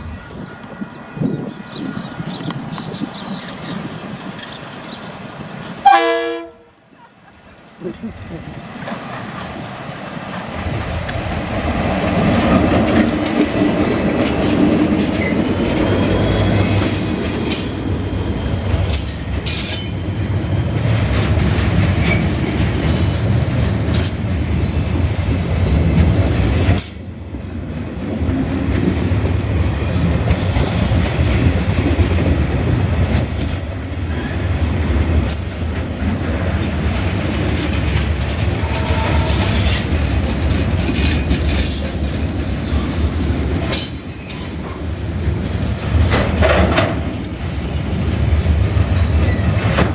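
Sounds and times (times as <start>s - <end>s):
high squealing glides: 14.1s - 20.9s, 32.4s - 40.0s.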